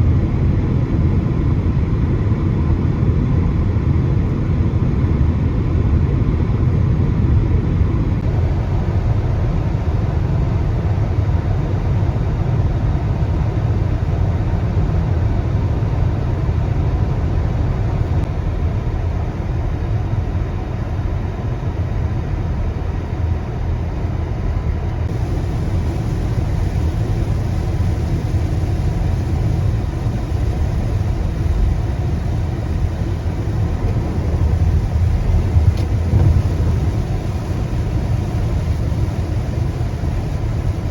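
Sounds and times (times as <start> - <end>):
car interior road rumble: 16.9 - 40.9.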